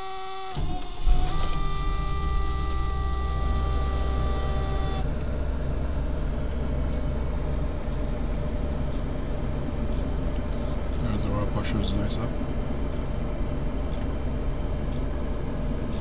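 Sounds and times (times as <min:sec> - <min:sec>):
car engine idling: 0:00.6 - 0:16.0
steady high tone: 0:01.0 - 0:13.6.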